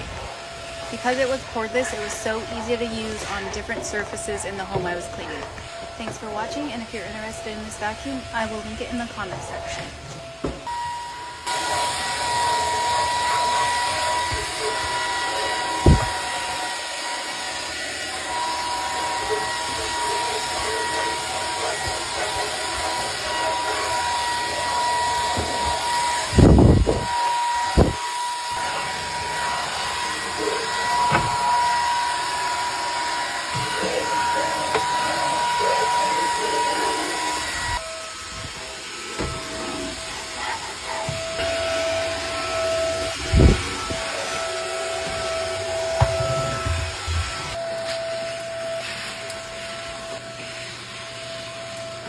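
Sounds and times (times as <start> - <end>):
vacuum cleaner motor whine: 0.0 - 52.0
vacuum cleaner bumping surfaces: 1.0 - 6.5, 8.5 - 10.9, 12.8 - 16.3, 24.6 - 37.6, 39.1 - 48.0.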